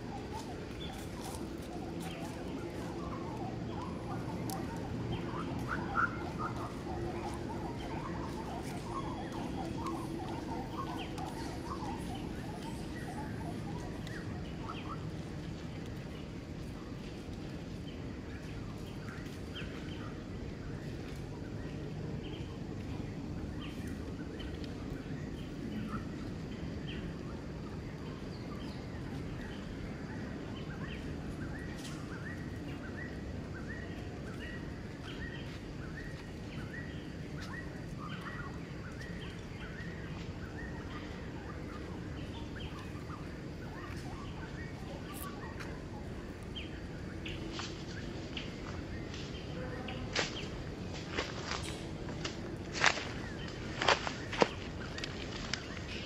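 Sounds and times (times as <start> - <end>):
bird chirping: 0.0 - 16.7
low rumble and hiss: 0.0 - 56.0.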